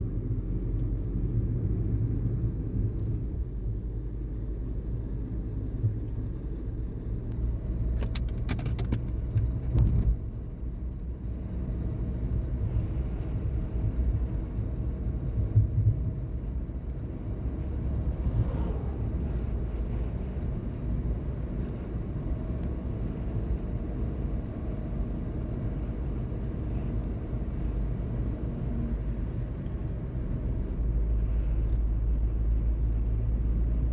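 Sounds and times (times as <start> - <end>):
car road and engine rumble: 0.0 - 33.9
sharp clicks and knocks: 7.9 - 10.1.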